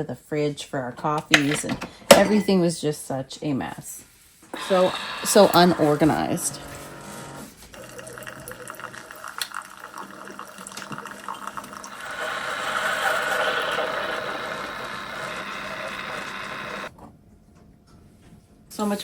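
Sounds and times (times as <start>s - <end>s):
liquid pouring into mug: 7.6s - 16.9s.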